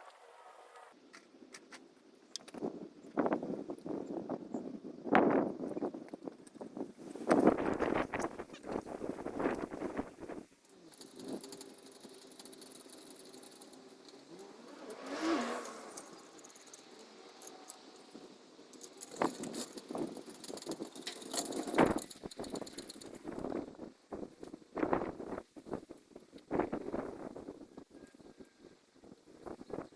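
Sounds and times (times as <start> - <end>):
vehicle passing: 13.7 - 17.9.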